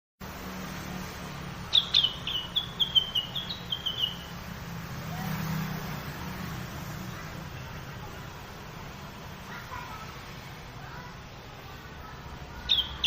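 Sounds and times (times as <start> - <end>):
bird song high slurred notes: 1.6 - 4.4, 12.6 - 13.0.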